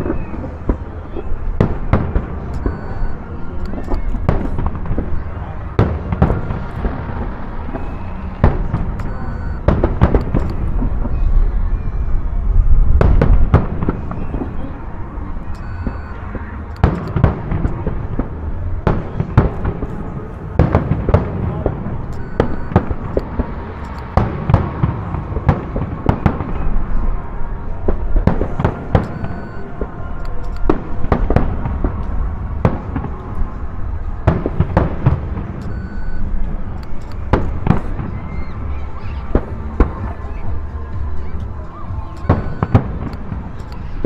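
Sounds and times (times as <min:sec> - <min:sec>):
fireworks crackling and rumble: 0:00.0 - 0:44.0.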